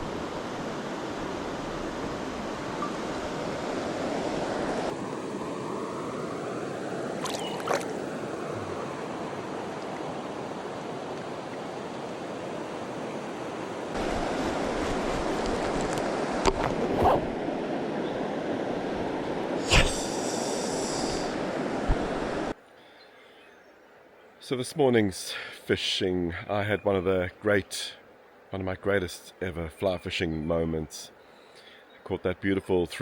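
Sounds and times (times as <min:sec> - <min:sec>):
river water rushing: 0:00.0 - 0:22.6.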